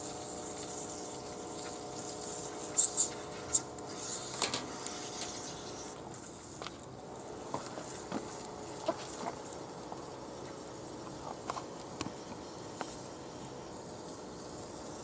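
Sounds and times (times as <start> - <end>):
wood fire hissing and crackling: 0.0 - 15.0.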